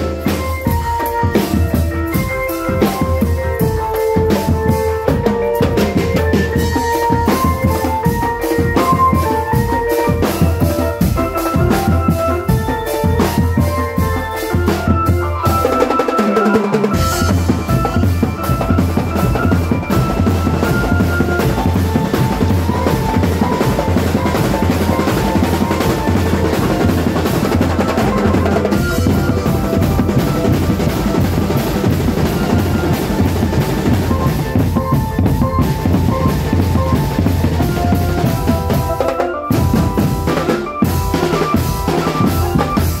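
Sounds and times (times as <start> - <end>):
bass and snare drums marching beat: 0.0 - 43.0
melody of short high notes: 0.0 - 43.0.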